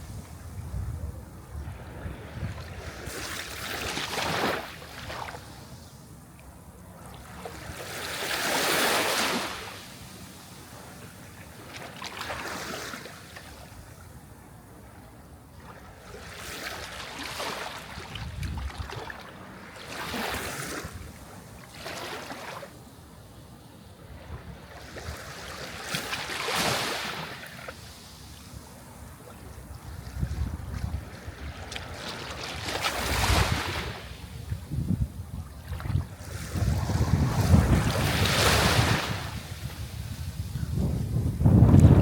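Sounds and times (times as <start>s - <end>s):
sea waves breaking on shore: 1.6s - 5.8s, 7.1s - 13.9s, 15.6s - 22.8s, 24.1s - 34.6s, 35.4s - 40.5s.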